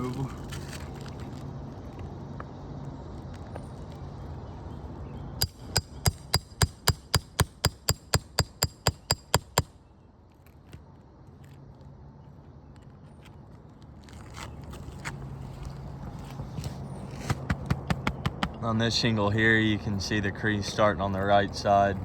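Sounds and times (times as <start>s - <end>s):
hammer striking metal tool: 5.4s - 9.7s.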